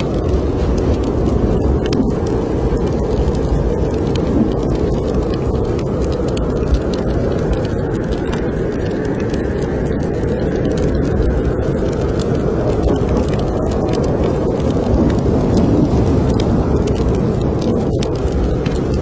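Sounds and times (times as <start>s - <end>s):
blizzard wind blowing: 0.0s - 19.0s
wood fire crackling: 0.0s - 19.0s.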